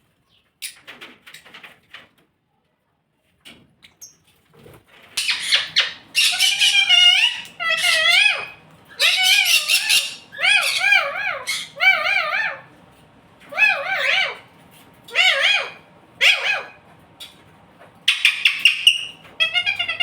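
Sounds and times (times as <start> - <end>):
parrot warbling calls: 5.2 - 12.7, 13.5 - 14.5, 15.1 - 16.8, 18.1 - 20.0.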